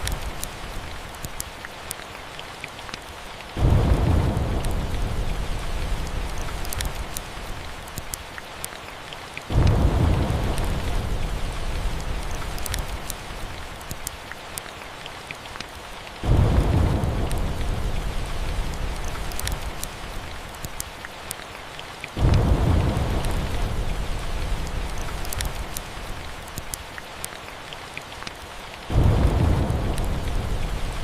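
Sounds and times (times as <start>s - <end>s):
faint crackles: 0.0s - 31.0s
steady rain: 0.0s - 31.0s
rolling thunder: 3.6s - 7.2s, 9.5s - 13.4s, 16.2s - 19.8s, 22.2s - 25.8s, 28.9s - 31.0s.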